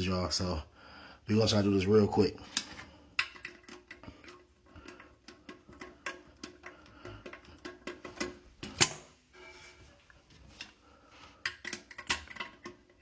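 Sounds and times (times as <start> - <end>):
toilet hardware clicks and knocks: 4.8 - 9.1, 11.4 - 13.0.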